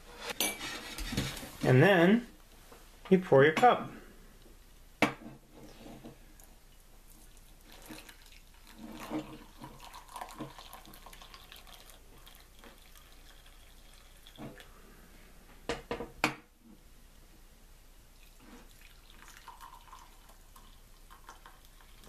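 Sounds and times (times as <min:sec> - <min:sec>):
coffee pouring into cup: 0:07.1 - 0:14.7, 0:18.2 - 0:22.0.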